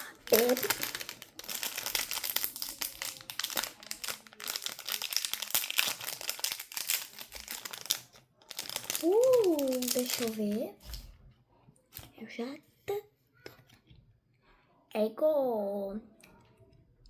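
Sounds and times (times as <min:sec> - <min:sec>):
plastic packaging crinkling: 0:00.0 - 0:11.1.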